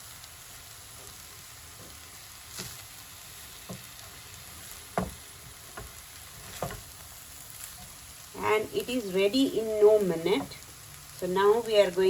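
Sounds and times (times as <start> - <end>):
rice sizzling in a hot pan: 0.0 - 12.0
spatula knocking against pan: 5.0 - 6.0.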